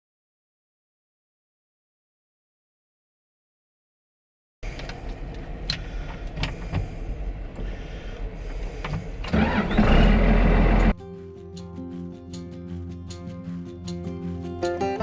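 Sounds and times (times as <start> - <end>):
wheel loader diesel engine: 4.6 - 11.0.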